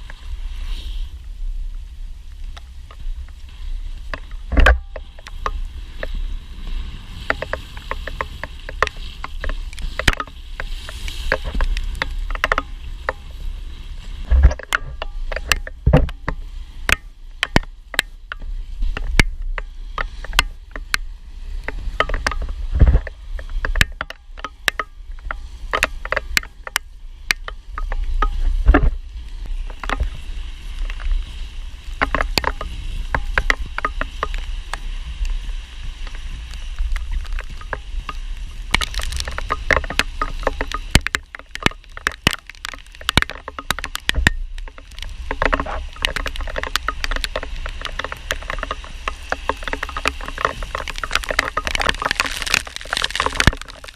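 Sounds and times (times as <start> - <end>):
skate wheels rolling on wet pavement: 0.0 - 53.9
wind on microphone: 0.0 - 53.9
sharp clicks and knocks: 4.1 - 6.2, 7.2 - 13.4, 14.2 - 30.2, 32.0 - 34.8, 36.0 - 53.9.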